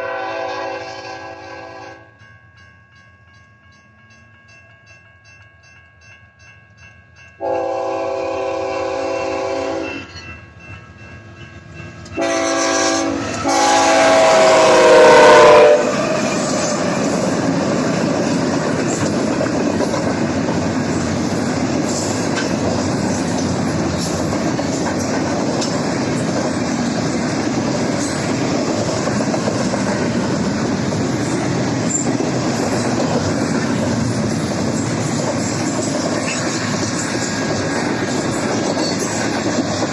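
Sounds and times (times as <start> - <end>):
locomotive air horn blasts: 0.0 - 2.0, 7.4 - 10.1, 12.2 - 16.7
crossing bell ringing: 1.0 - 8.4, 9.1 - 24.6
train cars rumbling and clacking: 3.3 - 39.9.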